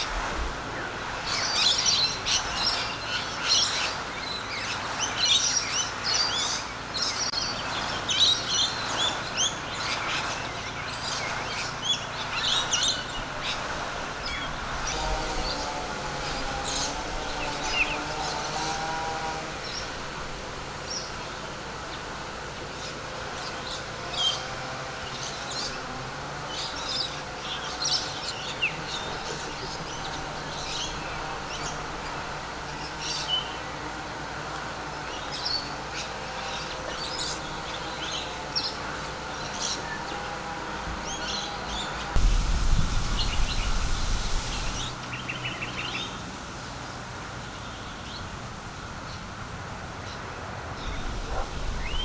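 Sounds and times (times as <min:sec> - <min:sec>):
small birds chirping: 0:00.0 - 0:52.0
loud rushing noise: 0:42.1 - 0:46.6.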